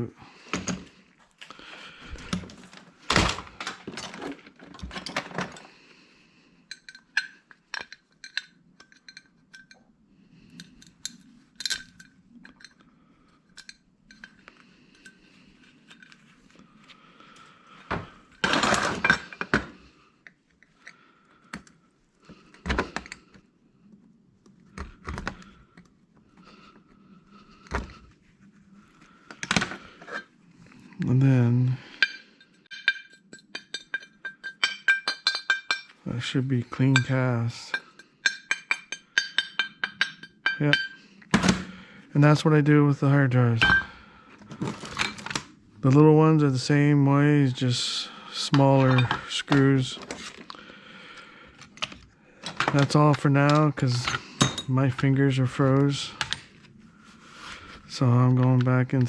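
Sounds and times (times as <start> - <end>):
metal parts clattering: 2.1 - 5.7, 10.6 - 12.8, 17.9 - 19.6, 32.0 - 41.6, 44.5 - 45.4, 47.8 - 50.6, 51.6 - 56.4
metal parts knocking and clinking: 2.1 - 5.7, 6.7 - 9.8, 10.6 - 15.2, 17.8 - 19.8, 31.9 - 41.7, 43.6 - 45.4, 48.4 - 50.6, 51.6 - 56.5.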